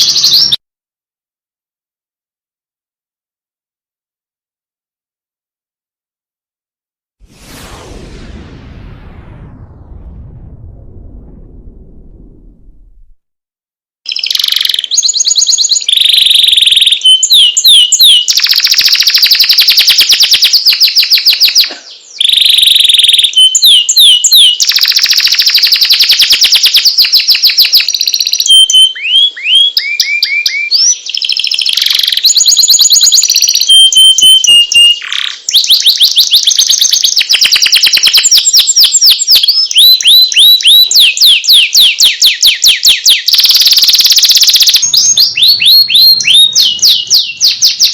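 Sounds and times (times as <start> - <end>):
canary singing trills: 0.0 - 0.6, 14.1 - 47.9.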